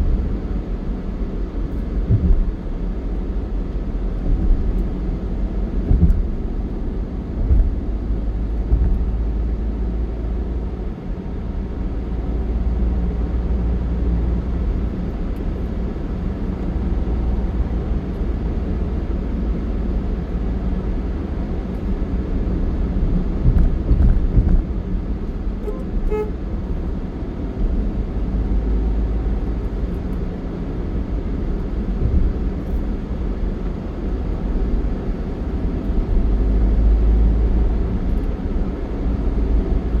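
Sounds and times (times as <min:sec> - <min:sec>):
vehicle travel rumble: 0:00.0 - 0:40.0
wind buffeting microphone: 0:02.0 - 0:02.8, 0:04.1 - 0:09.5, 0:23.2 - 0:24.9
vehicle horn toot: 0:25.6 - 0:26.4.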